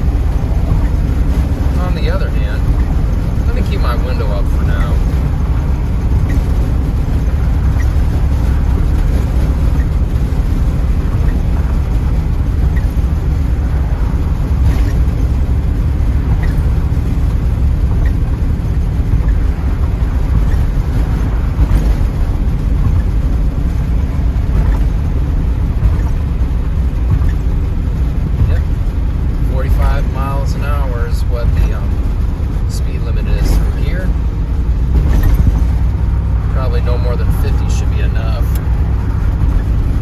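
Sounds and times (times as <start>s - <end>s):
road noise: 0.0s - 40.0s
wind buffeting in a car: 0.0s - 40.0s.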